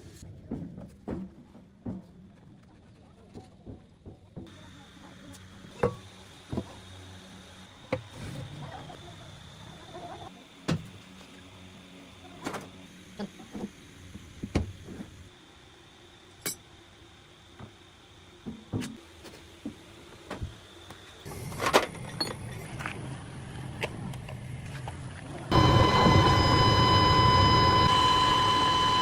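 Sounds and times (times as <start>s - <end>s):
machine humming: 25.4s - 29.0s.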